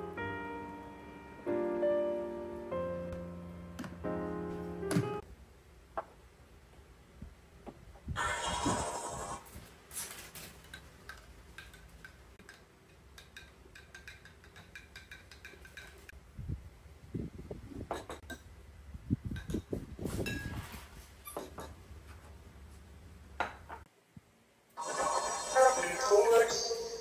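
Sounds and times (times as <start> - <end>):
spoon clinking in glass mugs: 13.2 - 16.0.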